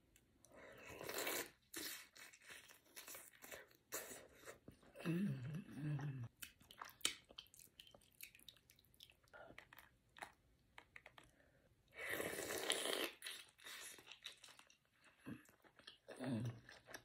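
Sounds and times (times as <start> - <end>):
person humming mmm: 5.0 - 6.3
wet chewing and smacking: 6.3 - 11.4.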